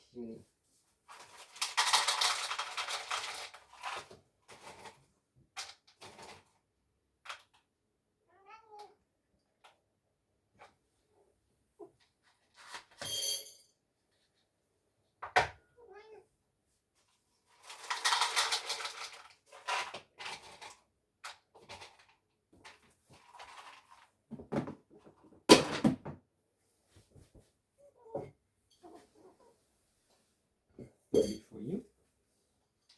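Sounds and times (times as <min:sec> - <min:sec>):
cat meowing: 0:08.3 - 0:09.0, 0:15.8 - 0:16.2.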